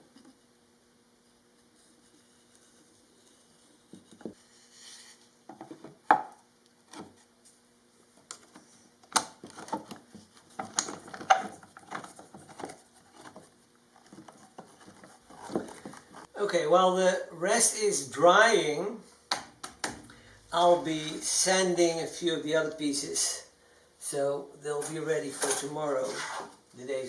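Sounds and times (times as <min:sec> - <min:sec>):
wooden pieces knocking and rubbing: 0:02.2 - 0:04.4, 0:08.4 - 0:16.3.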